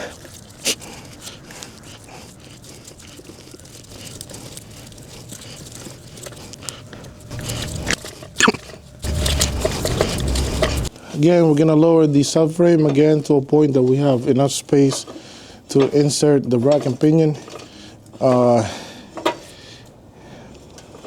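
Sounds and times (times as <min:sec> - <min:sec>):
low rumble: 0:07.2 - 0:08.0, 0:08.9 - 0:10.9.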